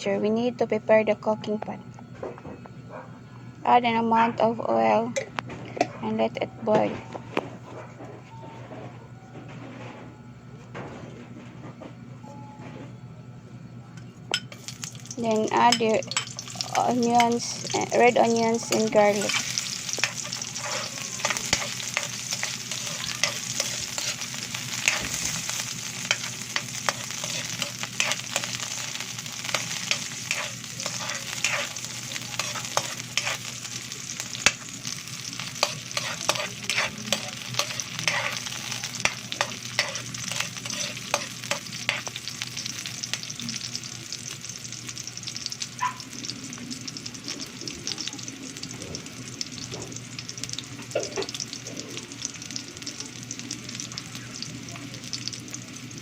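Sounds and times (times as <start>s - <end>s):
onion sizzling in hot oil: 14.3s - 56.0s
utensil scraping a pot: 18.7s - 25.4s, 26.1s - 28.6s, 29.5s - 33.5s, 35.6s - 42.2s.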